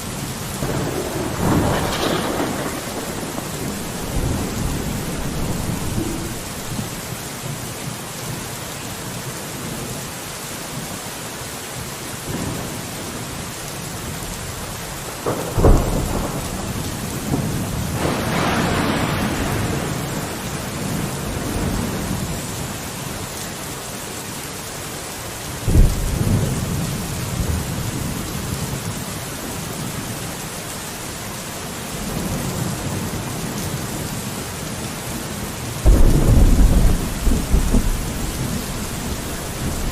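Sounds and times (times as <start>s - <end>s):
thunder rumbling: 0.0s - 7.2s, 14.5s - 22.4s, 25.6s - 28.9s, 35.8s - 39.9s
rain on a window: 0.0s - 39.9s
thunder claps: 0.6s - 7.0s, 15.2s - 22.1s, 25.7s - 26.9s, 35.8s - 39.9s.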